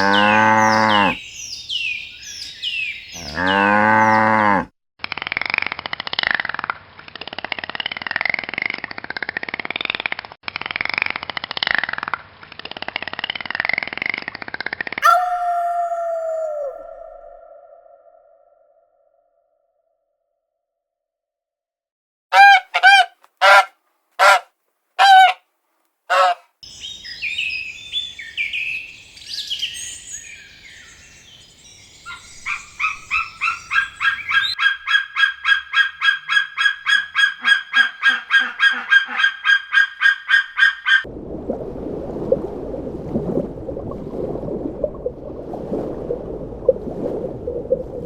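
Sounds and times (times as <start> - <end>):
farm birds calling: 0.0 - 1.2, 25.0 - 25.4, 26.1 - 26.4, 32.0 - 39.7.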